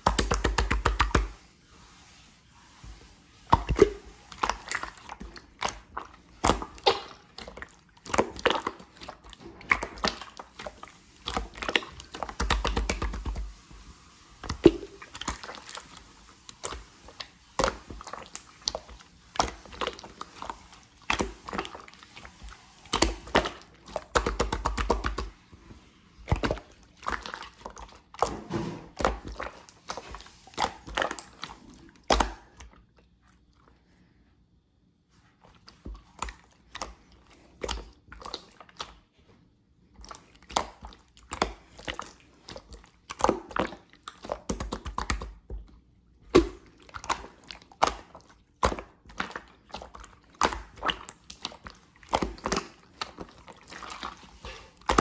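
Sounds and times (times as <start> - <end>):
slime squelching: 0.0 - 34.4, 35.0 - 55.0.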